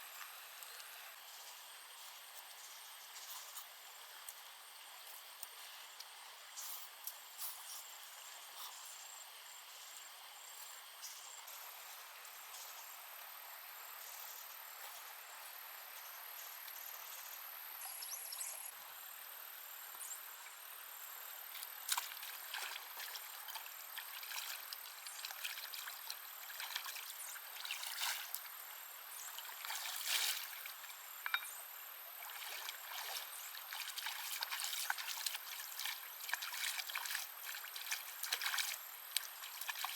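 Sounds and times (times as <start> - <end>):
water trickling and sloshing: 20.4 - 39.9
short clicks and splashes: 21.5 - 28.5, 32.2 - 39.9.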